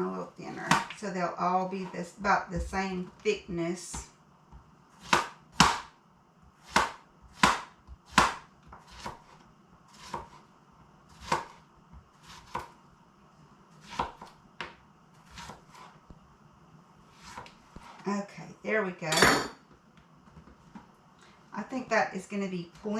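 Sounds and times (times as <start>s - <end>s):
knife slicing squash: 6.6s - 10.4s, 11.1s - 11.6s, 12.2s - 12.8s, 13.8s - 14.3s, 15.2s - 16.0s.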